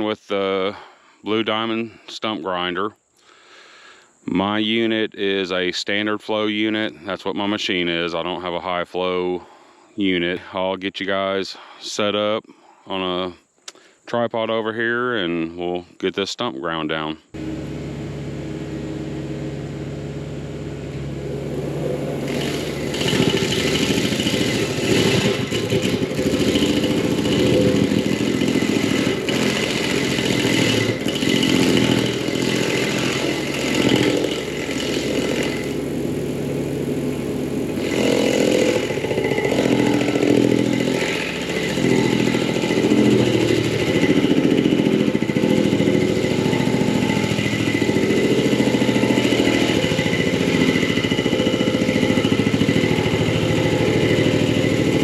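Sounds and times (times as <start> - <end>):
engine running under load: 17.3 - 55.0
stump grinder wheel grinding: 17.4 - 55.0.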